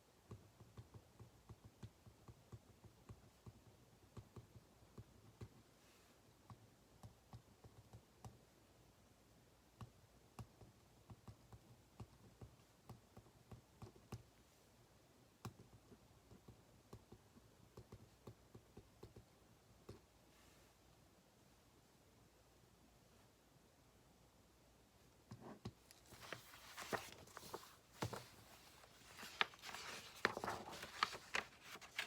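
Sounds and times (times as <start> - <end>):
low steady hum: 19.3 - 32.0.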